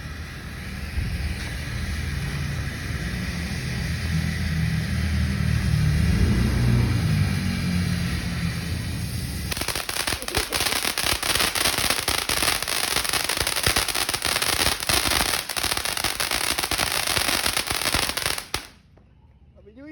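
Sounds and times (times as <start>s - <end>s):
firework fountain crackling: 8.1s - 18.8s.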